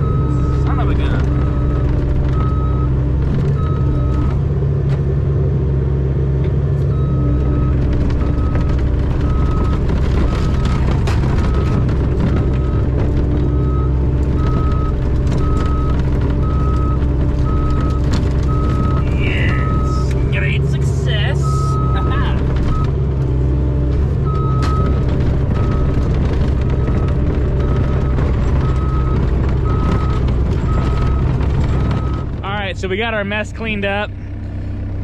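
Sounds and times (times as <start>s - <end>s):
excavator engine running: 0.0s - 35.0s
travel alarm beeping: 6.9s - 10.8s, 11.4s - 23.0s, 24.2s - 25.0s.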